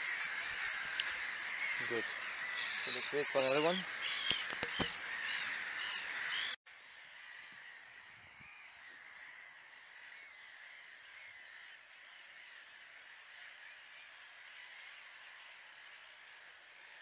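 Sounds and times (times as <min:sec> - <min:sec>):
birds calling: 0:00.0 - 0:06.6
faint lakeside ambience: 0:00.0 - 0:17.0.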